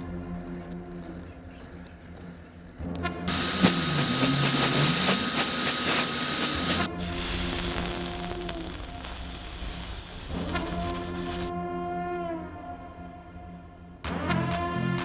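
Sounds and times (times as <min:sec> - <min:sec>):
rushing air hiss: 0:03.3 - 0:11.5.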